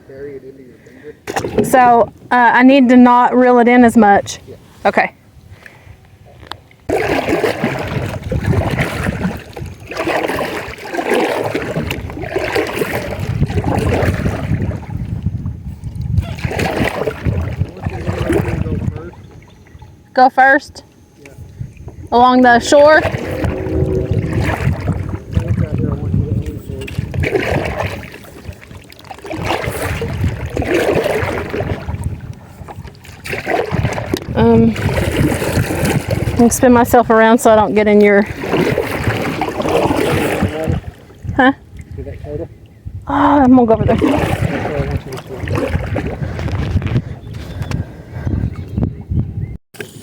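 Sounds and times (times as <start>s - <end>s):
wind buffeting microphone: 0.0s - 50.0s
paddle strokes swishing in water: 6.2s - 19.8s, 21.3s - 41.4s, 43.8s - 48.8s.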